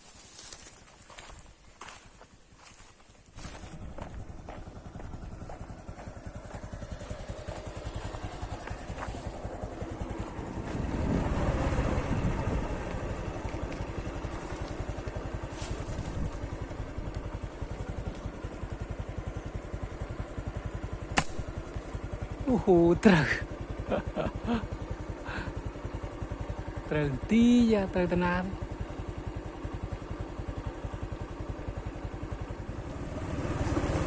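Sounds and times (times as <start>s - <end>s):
small engine running: 0.3s - 34.0s
sharp click: 21.1s - 21.5s.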